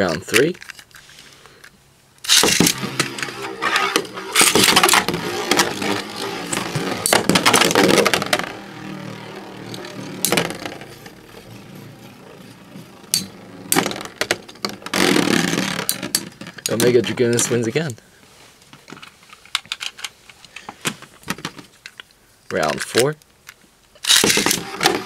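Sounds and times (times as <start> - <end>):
spinning tops whirring: 2.2 - 17.0, 24.0 - 25.0.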